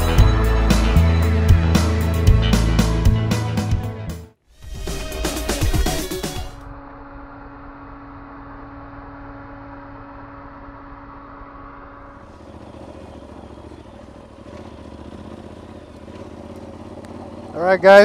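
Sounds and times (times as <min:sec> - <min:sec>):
steady hum: 0:05.4 - 0:12.9
motorcycle engine running: 0:05.5 - 0:18.0.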